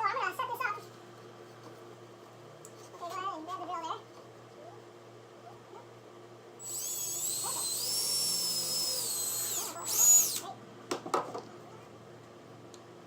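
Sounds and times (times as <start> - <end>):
electric drill whining: 6.6 - 10.5.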